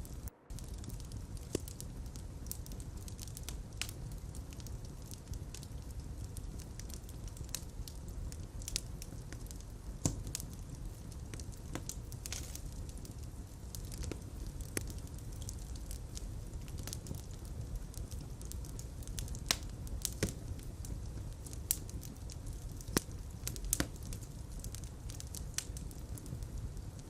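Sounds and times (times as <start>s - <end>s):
fire pops and snaps: 0.0s - 27.0s
low rumble of flames: 0.0s - 27.0s.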